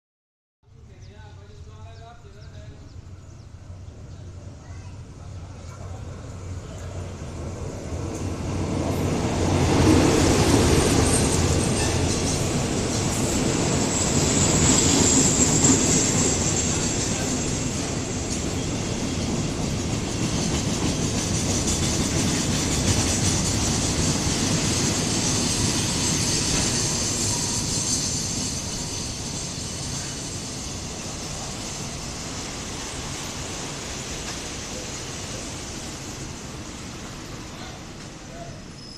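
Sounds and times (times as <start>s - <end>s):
wheels clattering on rails: 9.9s - 33.0s
high wheel squeal: 23.7s - 33.5s, 37.5s - 38.9s.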